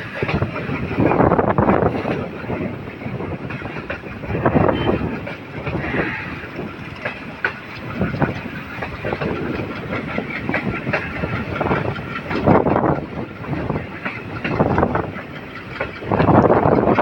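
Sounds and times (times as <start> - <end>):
train rumble and rattle: 0.0 - 17.0
wheels clacking over rail joints: 0.0 - 17.0.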